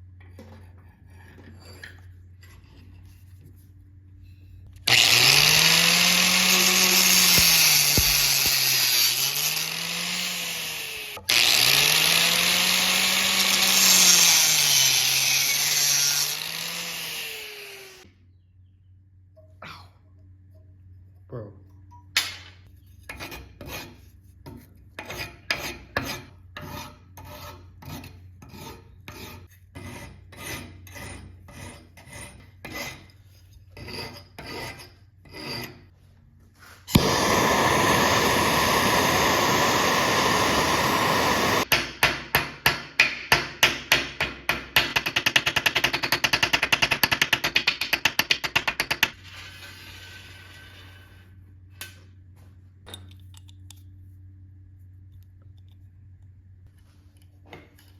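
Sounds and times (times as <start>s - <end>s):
metal file rasping: 23.1s - 24.3s, 25.0s - 35.9s.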